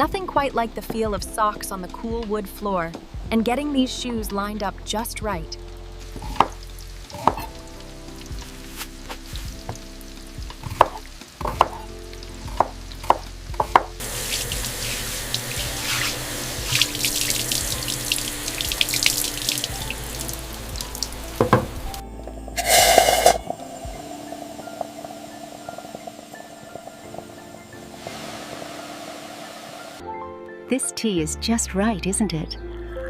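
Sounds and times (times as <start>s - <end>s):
soft background music: 0.0s - 33.0s
tap water running into sink: 6.0s - 22.0s, 22.6s - 28.7s.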